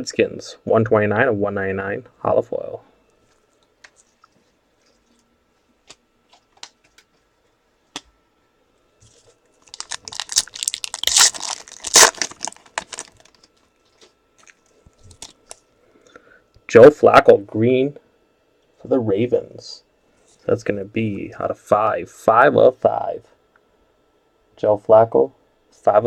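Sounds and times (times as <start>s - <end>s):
wrapper tearing and crinkling: 9.1s - 15.6s.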